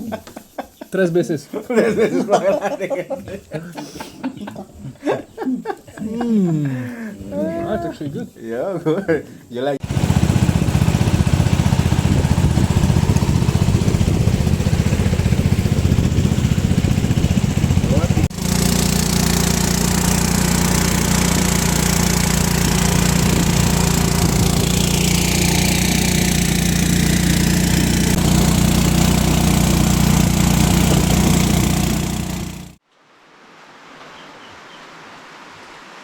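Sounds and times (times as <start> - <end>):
faint outdoor ambience: 0.0 - 9.8
small engine running: 9.8 - 32.8.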